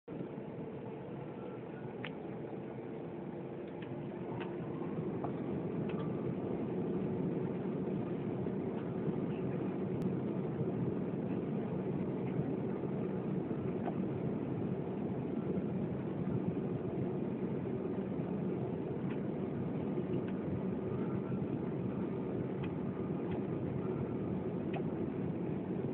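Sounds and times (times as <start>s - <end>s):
jet engines on takeoff: 0.1s - 25.9s.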